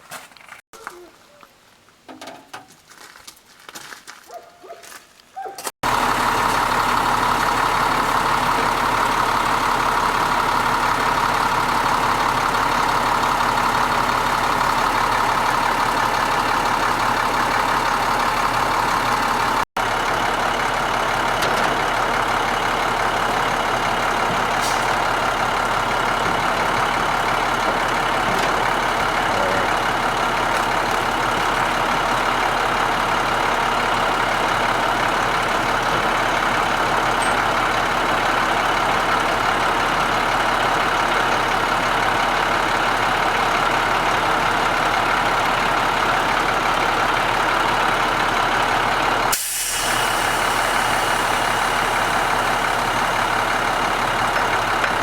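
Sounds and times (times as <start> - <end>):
truck engine running: 5.8 - 55.0.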